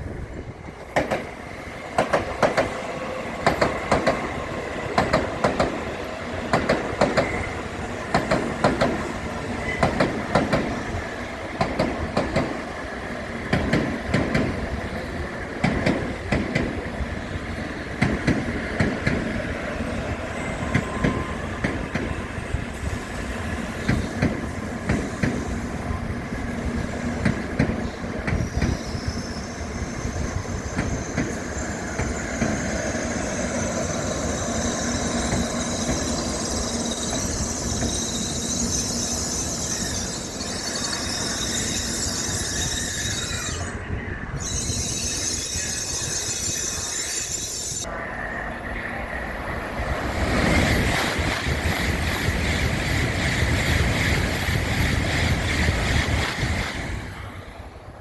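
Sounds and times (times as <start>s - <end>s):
train wheel squeal: 0.0s - 57.9s
train wheels clattering: 0.8s - 12.8s, 13.4s - 14.8s, 15.6s - 17.0s, 17.9s - 19.5s, 23.8s - 43.5s, 48.9s - 57.2s.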